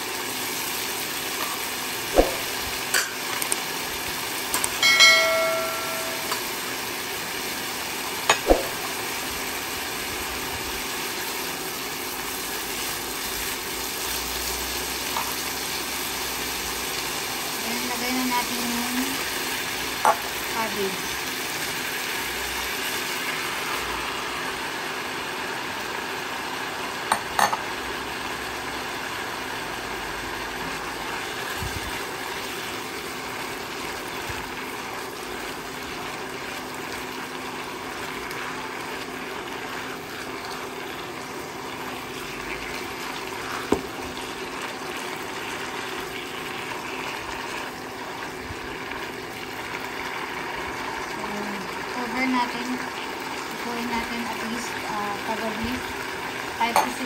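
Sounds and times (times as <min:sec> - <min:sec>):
food sizzling in a wok: 0:00.0 - 0:57.0
water splashing into wok: 0:01.2 - 0:06.5, 0:08.2 - 0:09.1.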